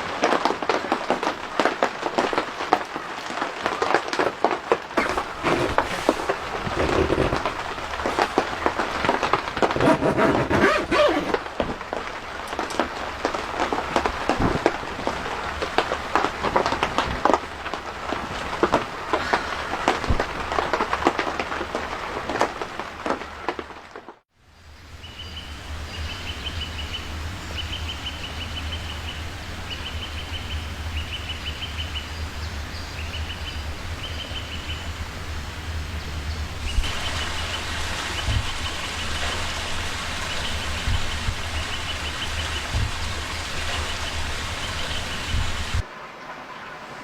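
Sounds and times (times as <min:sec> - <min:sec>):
steady hiss: 0:00.0 - 0:09.8, 0:24.4 - 0:47.0.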